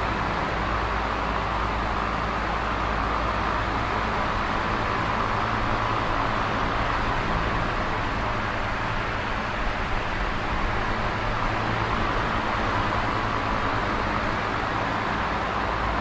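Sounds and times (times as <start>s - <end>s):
electric fan running: 0.0s - 16.0s.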